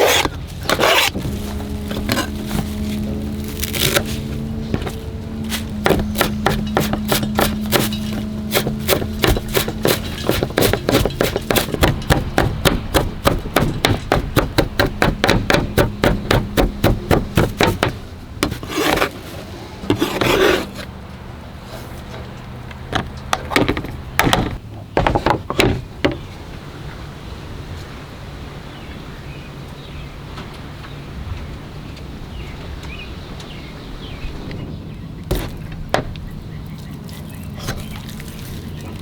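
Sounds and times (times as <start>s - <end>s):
short scrapes: 0.0s - 11.8s, 18.4s - 20.9s
knife chopping on wooden board: 5.6s - 19.2s.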